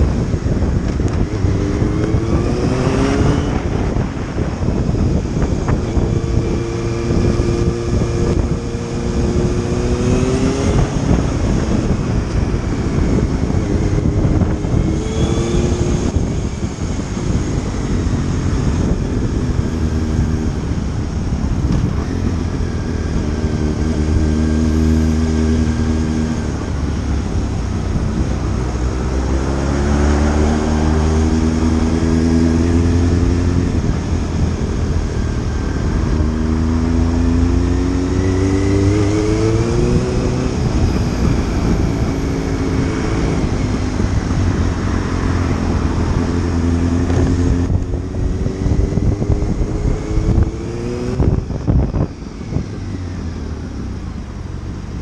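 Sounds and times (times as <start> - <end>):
motorcycle engine accelerating: 0.0 - 55.0
wind and road noise: 0.0 - 55.0.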